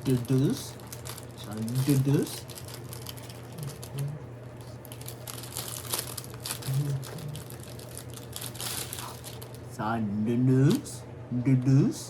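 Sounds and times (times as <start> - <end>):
packaging crackling: 0.0 - 4.1, 4.8 - 9.6
low steady hum: 0.0 - 12.0.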